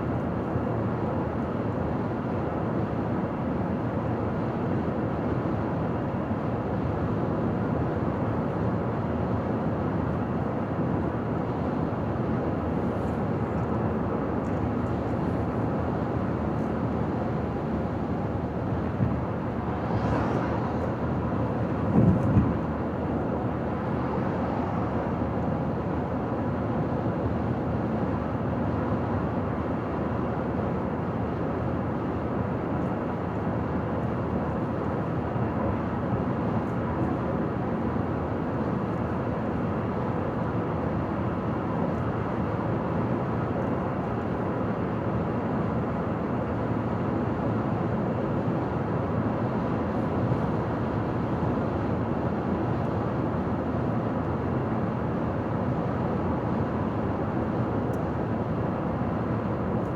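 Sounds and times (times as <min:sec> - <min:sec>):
car road noise on highway: 0:15.8 - 0:27.9, 0:48.2 - 0:54.4.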